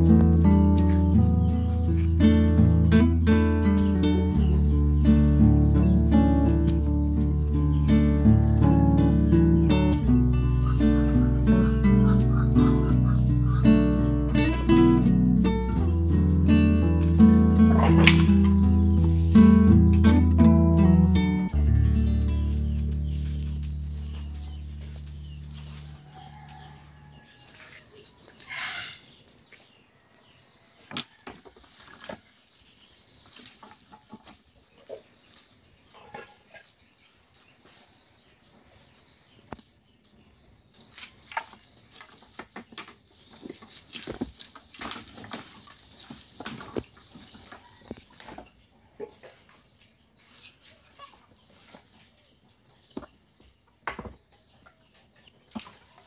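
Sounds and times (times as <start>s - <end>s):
background music: 0.0s - 25.4s
chickens clucking: 0.0s - 27.8s, 33.2s - 36.8s, 41.0s - 53.2s, 54.0s - 56.0s.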